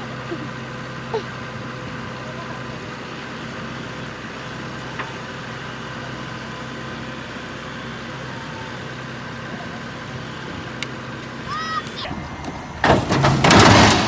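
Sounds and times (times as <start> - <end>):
heavy machine engine droning: 0.0 - 14.0.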